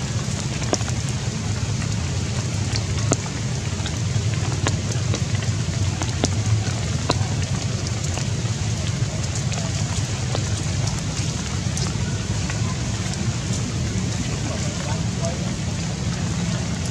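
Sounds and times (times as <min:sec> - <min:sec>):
constant low rumble: 0:00.0 - 0:16.9
sharp drops ticking: 0:00.0 - 0:16.9
steady rain falling: 0:00.0 - 0:16.9.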